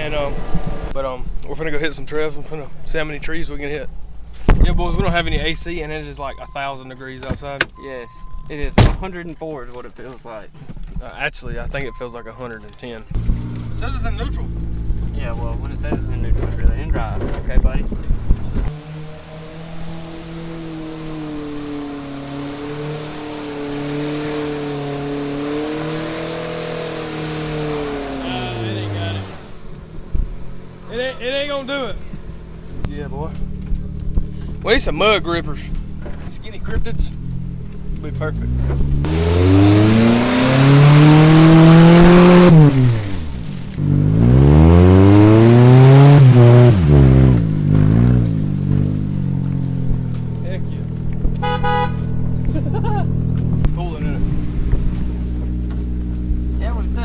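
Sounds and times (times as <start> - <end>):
car engine at high revs: 0.0 - 1.0, 13.1 - 57.0.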